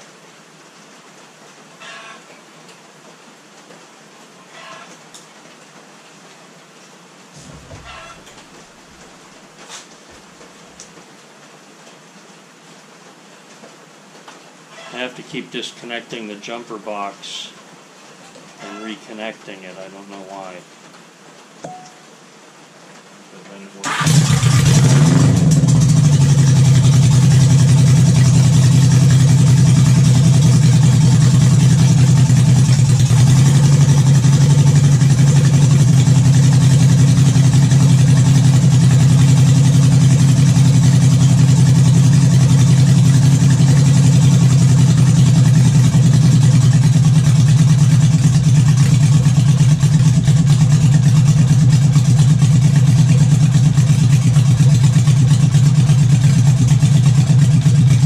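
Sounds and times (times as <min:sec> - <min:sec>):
motorcycle engine starting and running: 0:23.8 - 0:58.0.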